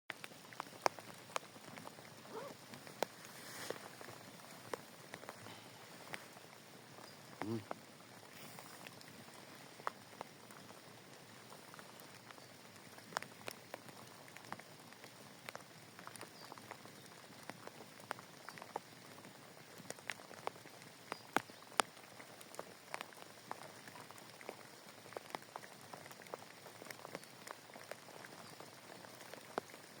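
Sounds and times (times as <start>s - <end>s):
rain hissing: 0.1s - 30.0s
raindrops ticking on surface: 0.1s - 30.0s.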